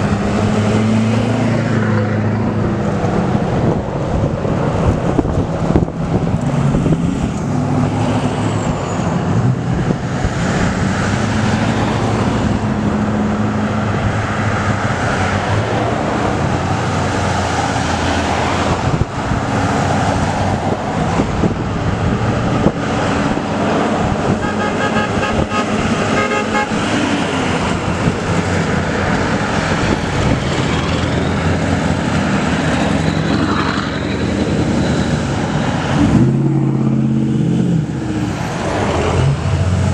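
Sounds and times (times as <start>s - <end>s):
truck engine and road noise: 0.0s - 39.9s
truck horns blowing: 24.2s - 27.1s.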